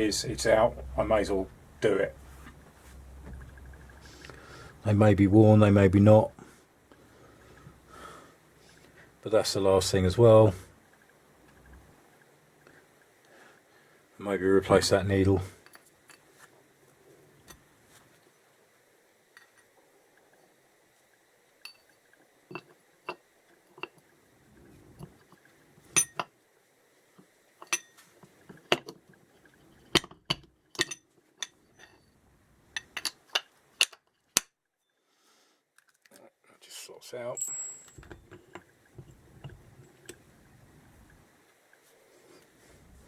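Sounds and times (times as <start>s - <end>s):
metal parts and tools clinking: 25.9s - 26.3s, 27.6s - 34.4s, 37.4s - 40.2s.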